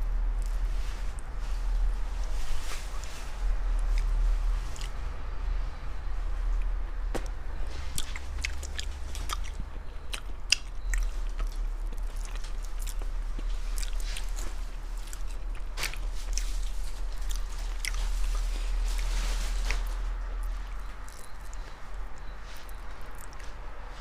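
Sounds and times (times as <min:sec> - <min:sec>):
steady low hum: 0:00.0 - 0:24.0
person chewing shrimp: 0:07.8 - 0:23.6.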